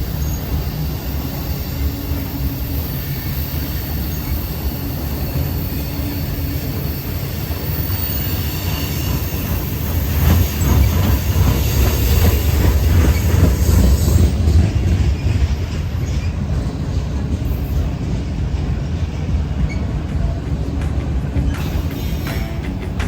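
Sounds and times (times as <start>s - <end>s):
train cars rumbling past: 0.0s - 23.0s
wheels clacking over rail joints: 7.8s - 23.0s.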